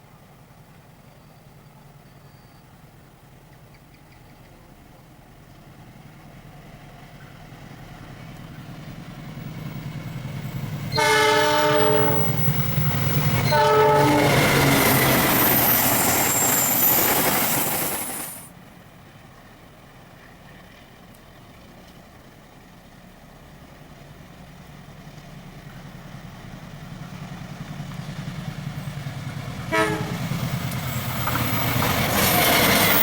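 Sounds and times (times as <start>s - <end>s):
train rumble and wheel noise: 0.0s - 33.0s
train passing loudly: 5.9s - 21.4s, 23.4s - 33.0s
train horn blast: 10.9s - 15.2s, 29.6s - 30.5s.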